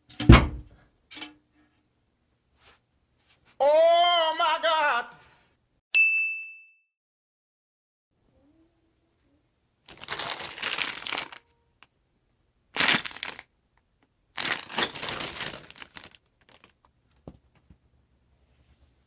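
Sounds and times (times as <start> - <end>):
small metal parts jingling: 9.9 - 11.4, 12.8 - 13.4, 14.4 - 16.7.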